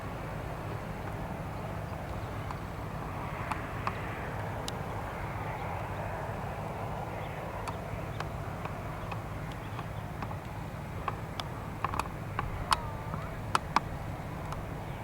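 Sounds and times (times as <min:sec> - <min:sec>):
faint clicks: 0:07.6 - 0:15.0
jet aircraft rumble: 0:11.2 - 0:15.0.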